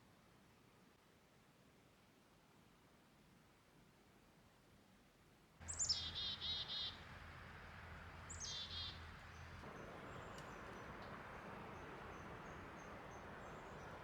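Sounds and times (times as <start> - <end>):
outdoor hush with low hum: 5.0 - 14.0
songbird singing: 5.6 - 7.1, 8.2 - 14.0.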